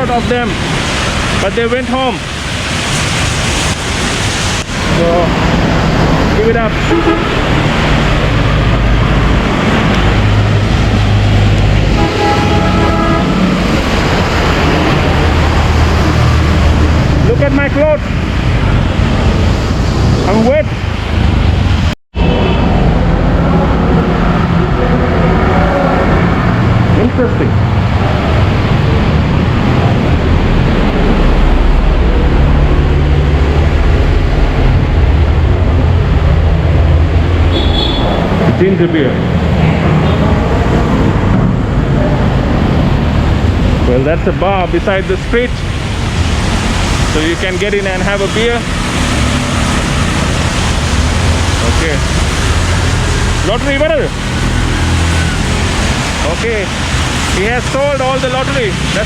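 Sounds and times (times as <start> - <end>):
heavy rain: 0.0 - 59.0
tyres hissing on wet road: 0.0 - 59.0
low engine drone: 22.1 - 59.0.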